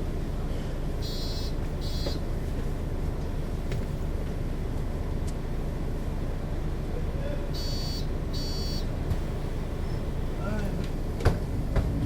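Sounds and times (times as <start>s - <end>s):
bus engine rumbling: 0.0s - 12.0s
short electronic beeps: 1.0s - 2.2s, 7.6s - 8.9s.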